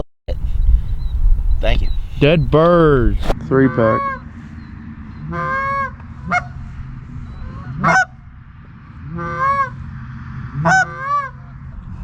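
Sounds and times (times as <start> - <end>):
goose honking: 3.5 - 4.4, 5.1 - 8.3, 9.0 - 9.9, 10.6 - 11.6.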